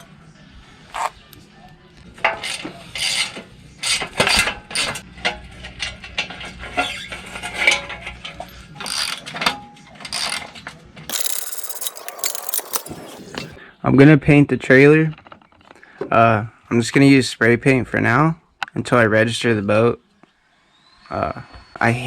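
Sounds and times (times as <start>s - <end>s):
ratchet clicking: 11.1s - 13.1s
metal parts clanking: 11.1s - 13.6s.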